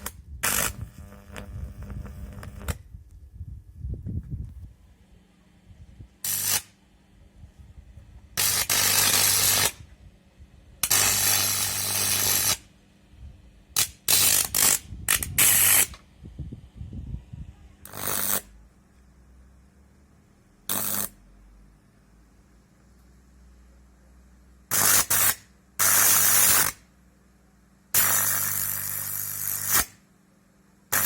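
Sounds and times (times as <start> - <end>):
electric arc crackling hiss: 0.0 - 2.8, 6.2 - 6.8, 8.4 - 9.8, 10.8 - 12.7, 13.8 - 16.0, 17.9 - 18.5, 20.7 - 21.2, 24.7 - 26.8, 28.0 - 30.0
mains hum: 0.0 - 31.0.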